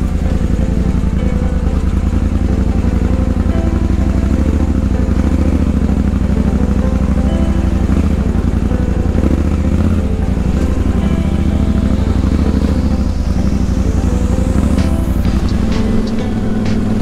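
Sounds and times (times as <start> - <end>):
motorcycle engine running: 0.0 - 17.0
thin high rising sweep: 0.0 - 17.0.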